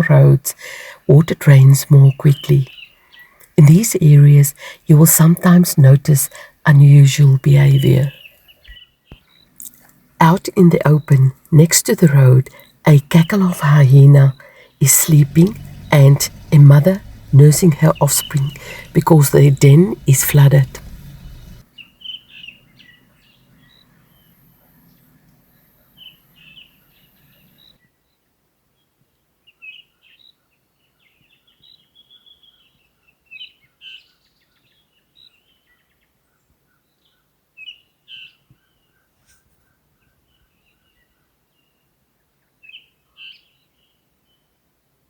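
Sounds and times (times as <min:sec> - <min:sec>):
faint low hum: 0:12.1 - 0:21.6
birds chirping: 0:12.4 - 0:24.3.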